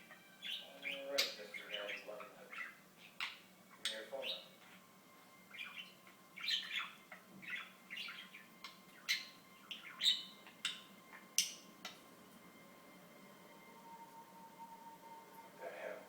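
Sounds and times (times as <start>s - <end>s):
budgerigar chattering and squawking: 0.0s - 4.8s, 5.5s - 12.0s.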